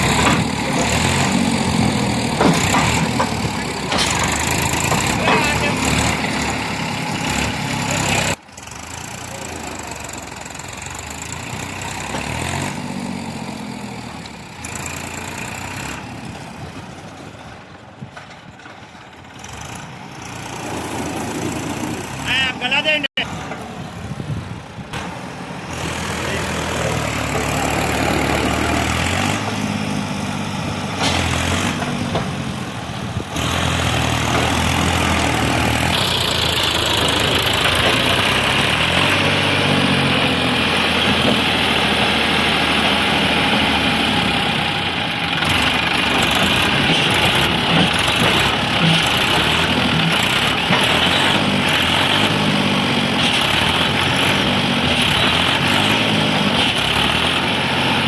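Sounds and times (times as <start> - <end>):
heavy vehicle engine revving: 0.0 - 16.9, 19.3 - 58.0.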